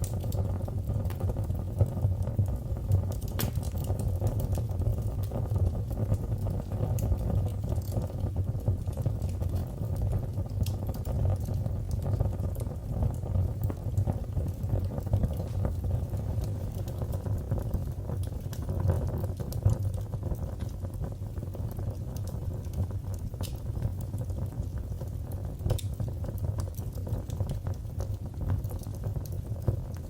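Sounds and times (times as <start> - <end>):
fireplace fire crackling: 0.0 - 30.0.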